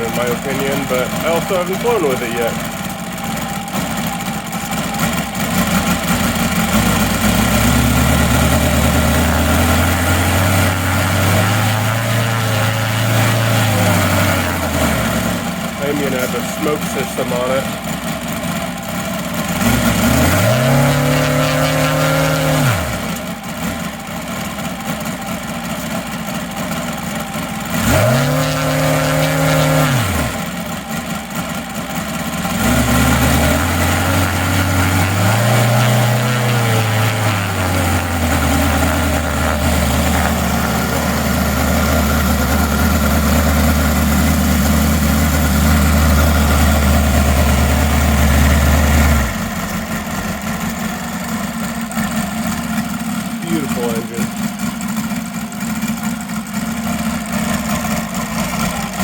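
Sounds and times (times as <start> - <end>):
model aircraft engine revving: 0.0 - 59.0.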